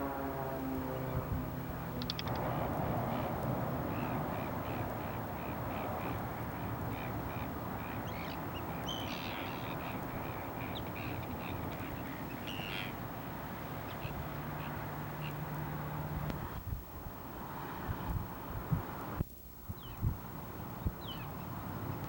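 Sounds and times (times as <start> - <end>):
steady background noise: 0.0 - 22.0
birds calling: 0.8 - 16.6, 20.7 - 22.0
higher sharper bird calls: 2.0 - 2.4, 3.1 - 15.5.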